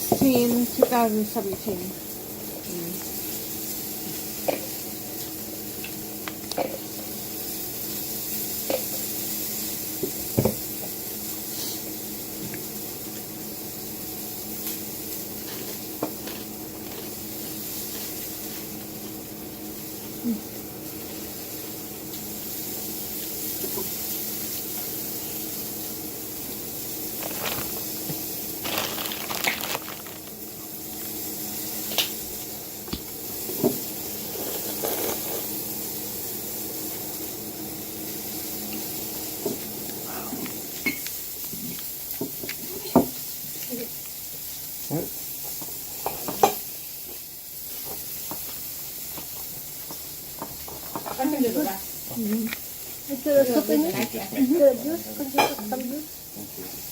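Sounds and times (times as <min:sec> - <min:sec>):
steady hiss: 0:16.6 - 0:56.9.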